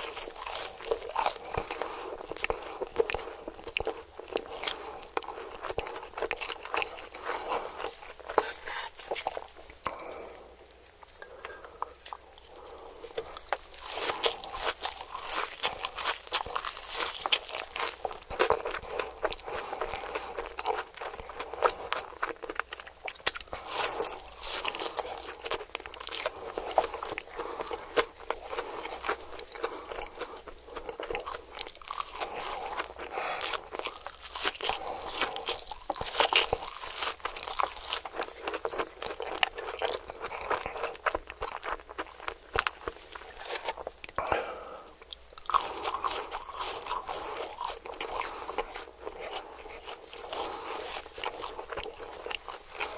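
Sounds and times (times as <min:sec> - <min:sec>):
person chewing crunchy food: 0:00.0 - 0:52.9.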